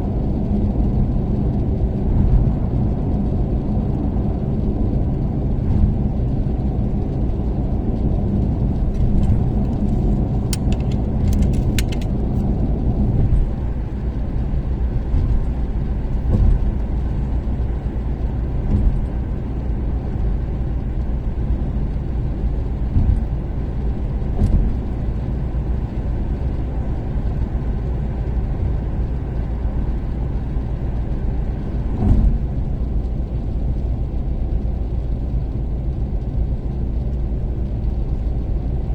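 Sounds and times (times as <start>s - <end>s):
car engine and tyre noise: 0.0s - 38.9s
sharp clicks: 9.0s - 12.5s.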